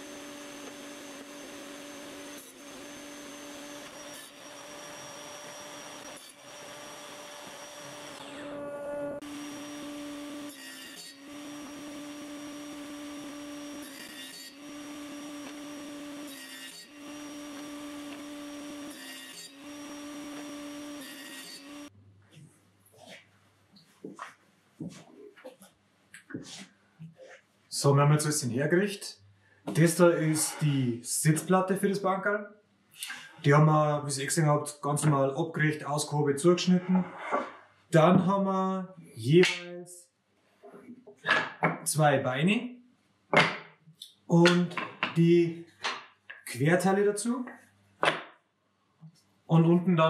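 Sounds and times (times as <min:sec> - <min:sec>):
woodworking power tools humming: 0:00.0 - 0:21.9.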